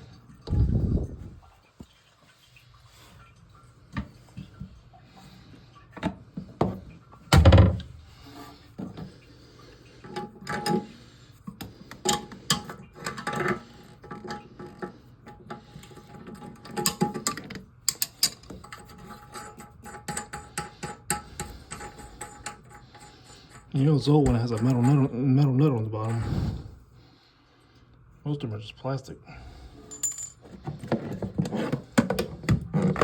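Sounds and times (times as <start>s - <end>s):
knocks and scrapes on toilet tank: 6.0s - 9.1s, 18.5s - 25.1s, 30.4s - 33.0s.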